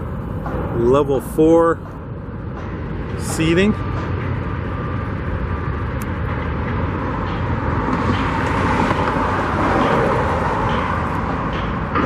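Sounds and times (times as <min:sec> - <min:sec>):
road traffic going by: 0:00.0 - 0:12.0
vehicle passing close: 0:03.8 - 0:12.0.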